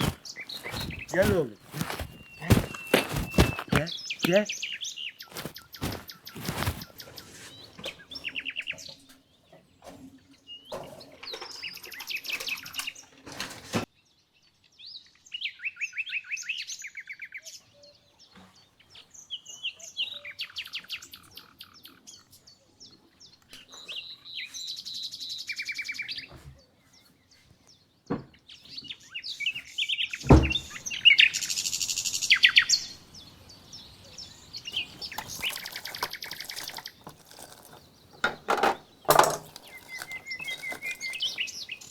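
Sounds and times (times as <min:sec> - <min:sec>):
songbirds chirping and trilling: 0:00.0 - 0:15.3, 0:26.2 - 0:41.9.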